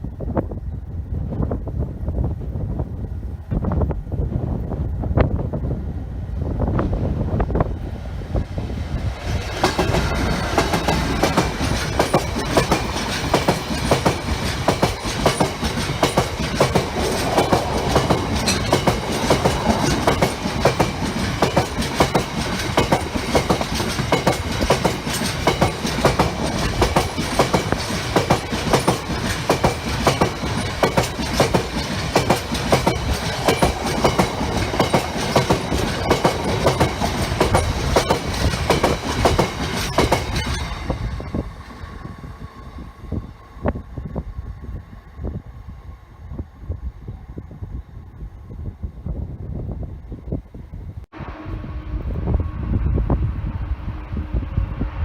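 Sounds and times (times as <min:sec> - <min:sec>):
train wheels clattering over joints: 0:09.4 - 0:41.4.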